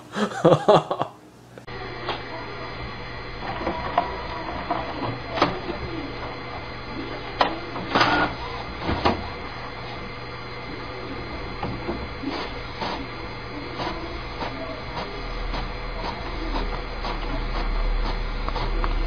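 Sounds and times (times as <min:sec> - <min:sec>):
printer whirring: 0:01.6 - 0:19.0
printer clacks: 0:03.4 - 0:09.9, 0:11.2 - 0:19.0.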